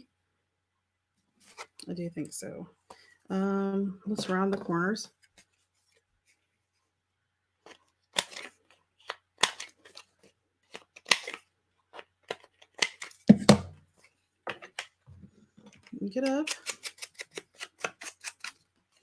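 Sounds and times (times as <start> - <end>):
scissors snipping paper: 12.2 - 13.2, 16.1 - 18.6.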